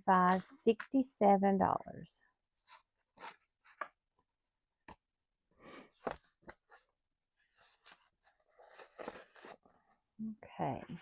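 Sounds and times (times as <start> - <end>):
paper rustling: 2.6 - 4.0, 6.0 - 10.0.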